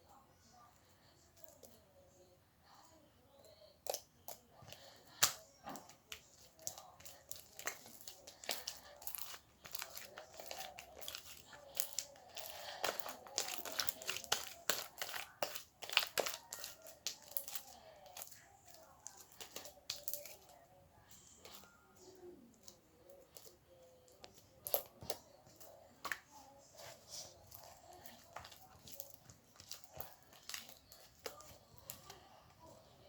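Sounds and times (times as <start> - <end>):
slime crackling and popping: 4.6 - 18.4, 19.0 - 20.5.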